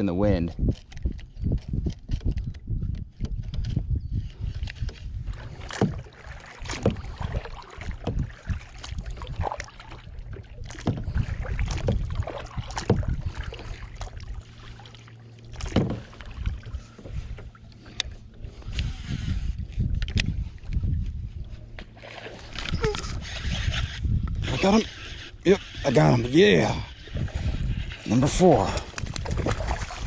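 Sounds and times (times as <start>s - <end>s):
wind rumble on microphone: 0.0s - 30.0s
paddle knocking against hull: 4.8s - 14.9s, 15.5s - 18.1s
paddle splashes: 4.8s - 19.5s, 21.7s - 30.0s.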